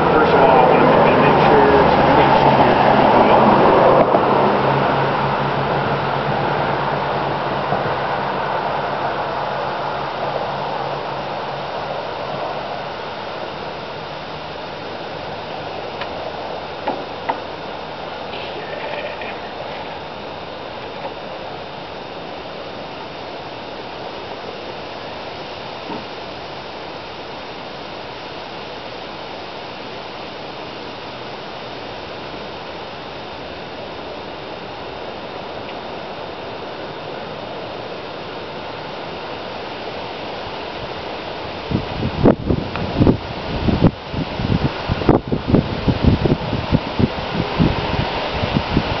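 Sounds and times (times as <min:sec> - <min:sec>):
wind on microphone: 0:00.0 - 0:22.4, 0:40.8 - 0:49.0
passing car: 0:00.0 - 0:26.1.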